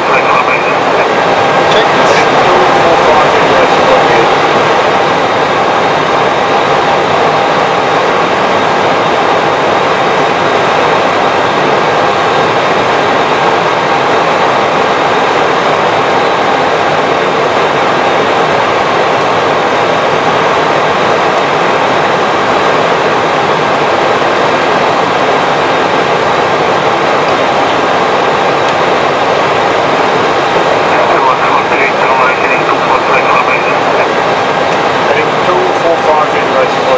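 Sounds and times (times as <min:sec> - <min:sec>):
airflow and engine noise: 0:00.0 - 0:36.9.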